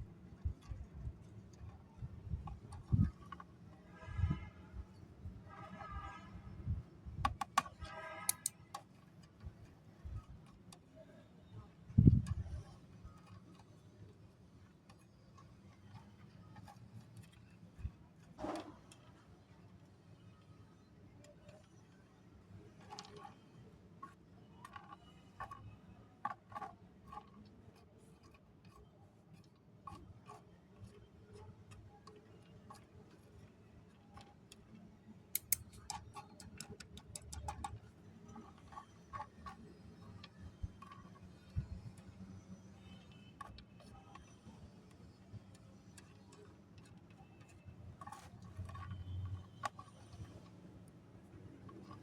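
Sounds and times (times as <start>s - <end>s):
snack pieces clicking: 8.3s - 8.6s, 35.4s - 37.6s.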